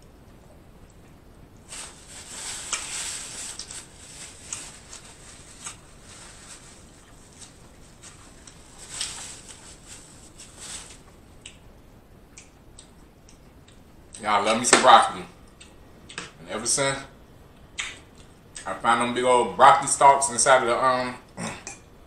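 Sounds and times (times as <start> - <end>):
soft rustling hiss: 0.0 - 22.0
chewing with wet mouth clicks: 11.4 - 11.6.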